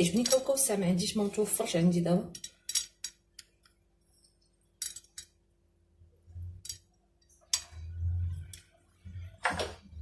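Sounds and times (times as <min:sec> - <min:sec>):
kitchenware clicks and clinks: 0:02.3 - 0:03.4.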